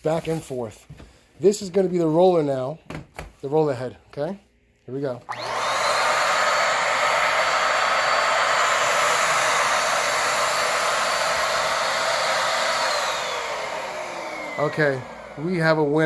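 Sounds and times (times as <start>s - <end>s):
vacuum cleaner running: 5.3s - 16.0s.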